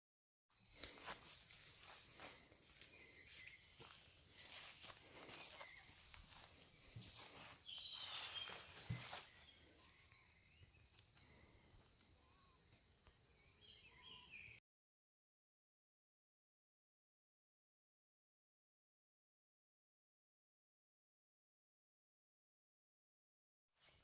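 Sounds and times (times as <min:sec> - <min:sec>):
insects chirring: 0:00.6 - 0:14.6
light scuffs and clicks: 0:04.4 - 0:09.3.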